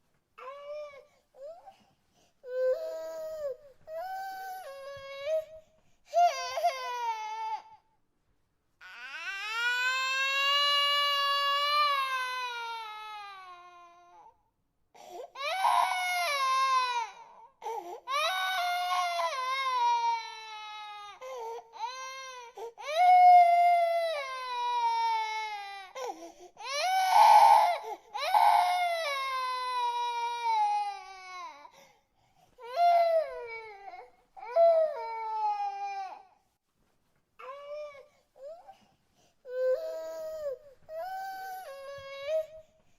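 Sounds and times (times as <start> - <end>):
baby crying: 2.4 - 7.8, 15.4 - 31.7.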